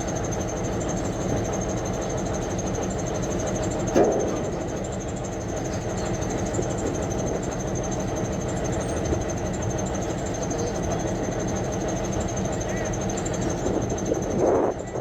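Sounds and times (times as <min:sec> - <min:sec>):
high pulsing whine: 0:10.4 - 0:15.0.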